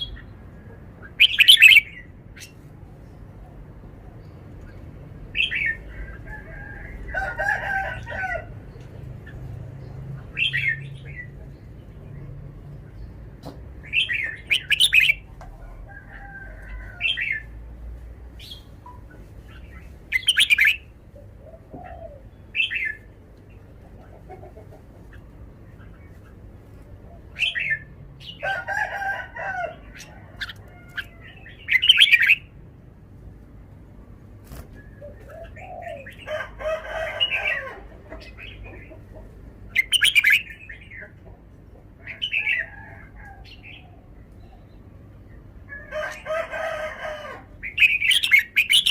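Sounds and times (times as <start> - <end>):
bird singing bright phrases: 0.0 - 3.3, 8.8 - 15.3, 18.4 - 21.0, 22.0 - 23.7, 29.8 - 32.6, 39.7 - 41.1, 47.7 - 48.9.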